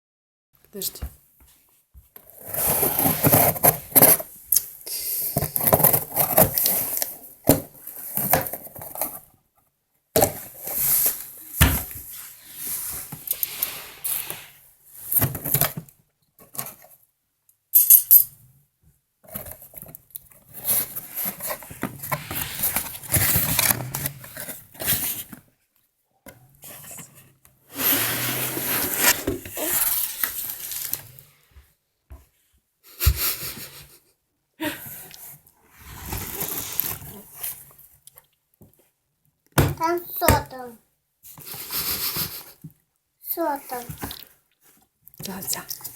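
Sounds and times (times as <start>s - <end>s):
rustling and clattering objects: 1.0s - 4.5s, 5.3s - 17.0s, 18.9s - 32.3s, 35.2s - 37.9s.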